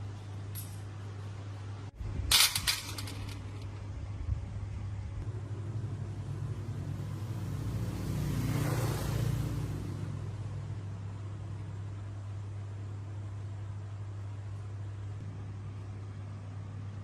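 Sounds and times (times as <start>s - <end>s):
low mechanical hum: 0.0s - 8.7s, 9.3s - 17.0s.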